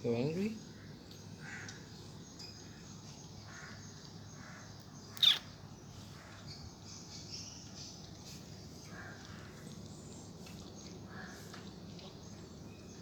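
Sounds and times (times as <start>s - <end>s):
crow cawing: 1.4s - 1.8s.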